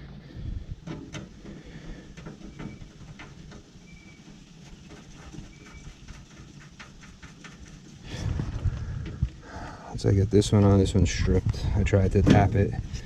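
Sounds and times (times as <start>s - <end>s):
faint high chirps: 3.8s - 4.3s.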